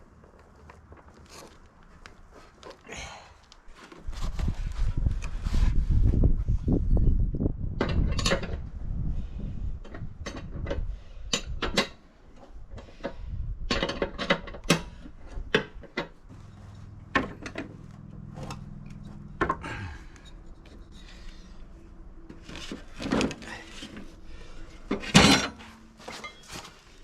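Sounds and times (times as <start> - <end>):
metal parts clinking and scraping: 15.8 - 27.0
steady low hum: 16.2 - 27.0
low rumbling: 16.3 - 26.2.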